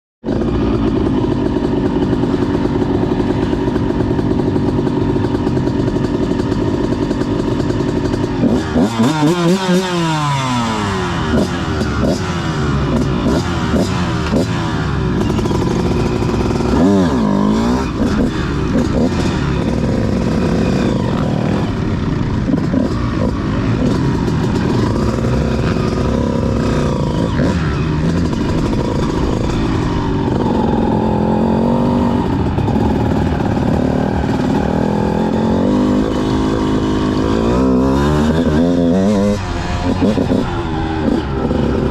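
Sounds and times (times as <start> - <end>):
motocross bike engine revving: 0.2 - 41.9.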